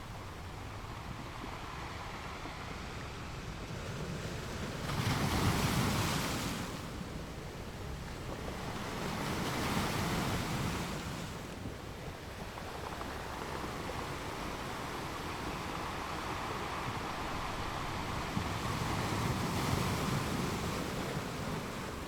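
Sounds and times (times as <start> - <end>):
sea waves surging: 8.4 - 22.0.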